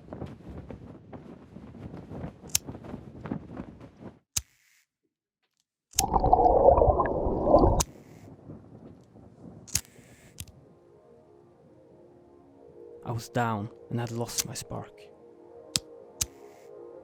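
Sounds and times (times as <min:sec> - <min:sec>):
gurgling bubbling water: 0:06.0 - 0:07.8
low crackling rumble: 0:06.0 - 0:10.7.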